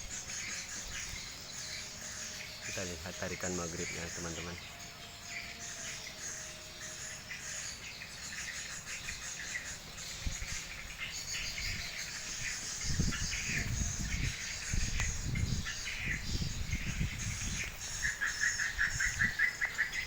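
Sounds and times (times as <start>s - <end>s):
wind buffeting microphone: 8.7s - 20.0s.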